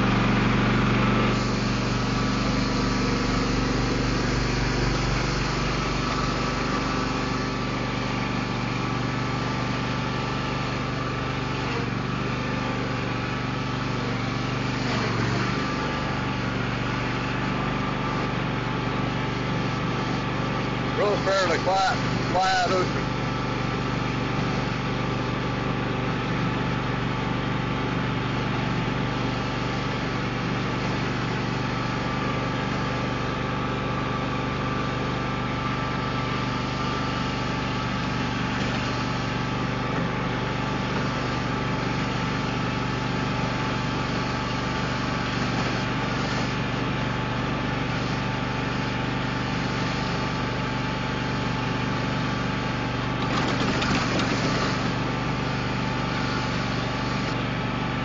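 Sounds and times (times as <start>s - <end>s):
lawn mower engine running: 0.0s - 49.6s, 50.2s - 58.0s.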